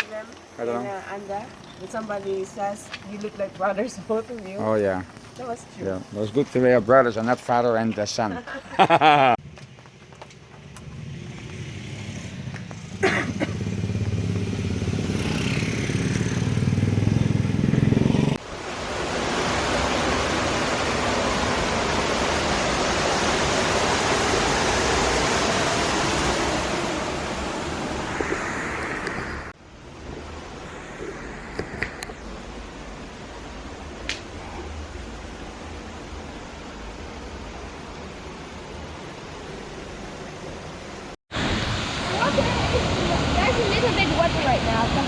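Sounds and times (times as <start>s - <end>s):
vehicle engine rumbling: 9.0s - 18.4s
loud steady rushing noise: 10.9s - 45.0s.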